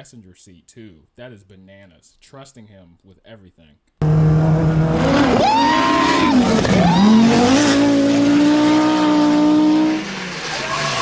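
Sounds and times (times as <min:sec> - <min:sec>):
rally car engine at high revs: 0:04.0 - 0:11.0.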